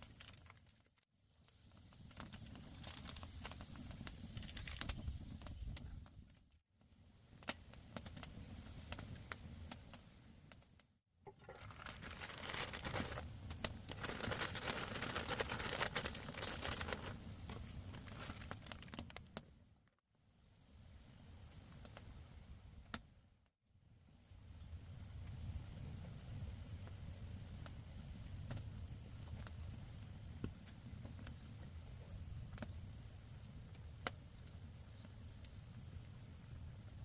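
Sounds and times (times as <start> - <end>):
crinkling and rustling: 0.0 - 1.0, 11.3 - 19.3.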